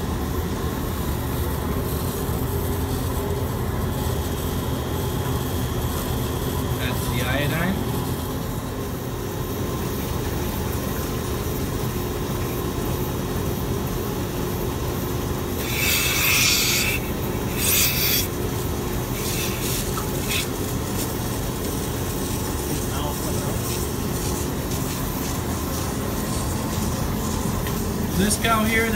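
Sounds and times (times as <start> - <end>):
vacuum pump humming: 0.0 - 28.9.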